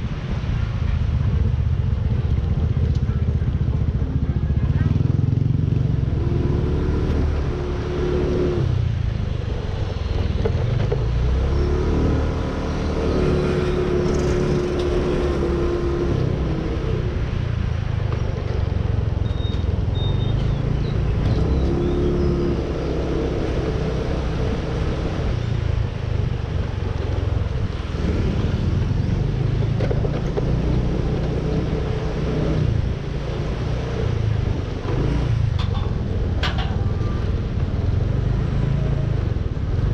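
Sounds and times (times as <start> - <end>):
motorcycle engine rumble: 0.0 - 39.9.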